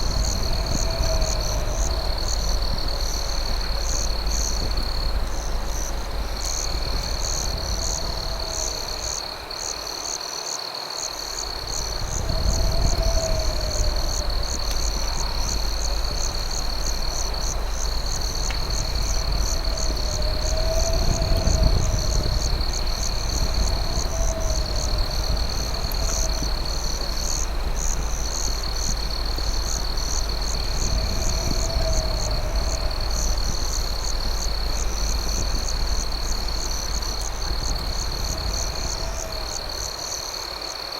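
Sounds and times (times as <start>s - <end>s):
low rumble: 0.0s - 9.7s, 11.3s - 40.3s
crickets trilling: 0.0s - 40.9s
low warbling insect call: 0.0s - 40.9s
pulsing insect chirp: 0.0s - 40.9s.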